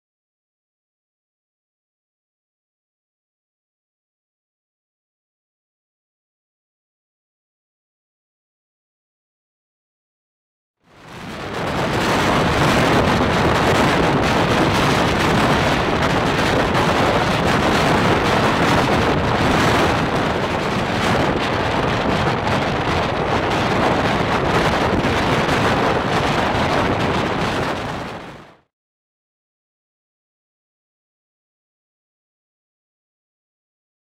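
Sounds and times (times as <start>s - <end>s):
wind buffeting the microphone: 10.9s - 28.7s.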